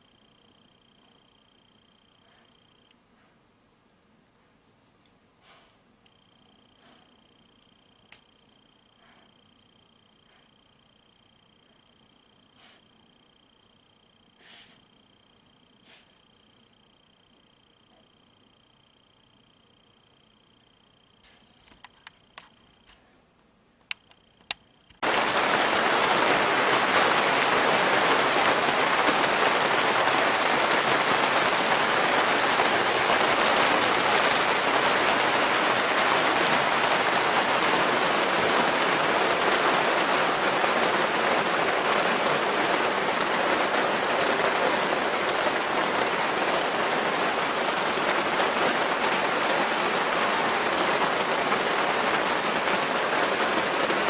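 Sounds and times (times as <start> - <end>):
faint clicks: 8.1 - 8.3, 21.2 - 25.0
rain falling: 24.0 - 54.0.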